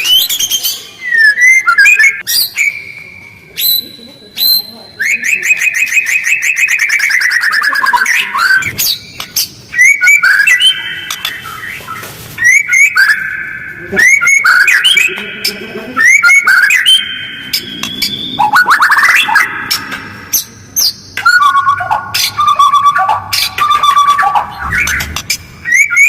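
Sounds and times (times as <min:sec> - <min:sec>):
songbird trilling and whistling: 0:00.0 - 0:26.0.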